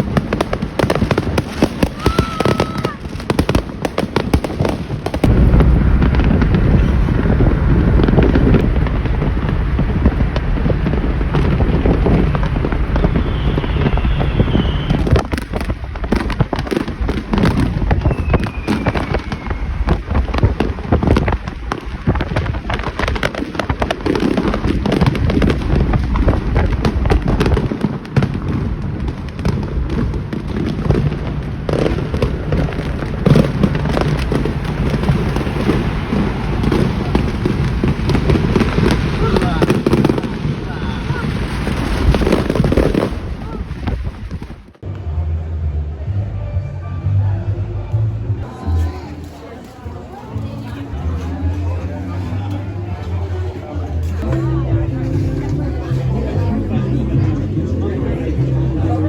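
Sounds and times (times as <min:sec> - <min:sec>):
deep firework booms: 0:00.0 - 0:44.8
fireworks bangs and crackling: 0:00.0 - 0:45.1, 0:48.4 - 0:59.0
firework whistles: 0:12.4 - 0:16.0, 0:17.5 - 0:21.3.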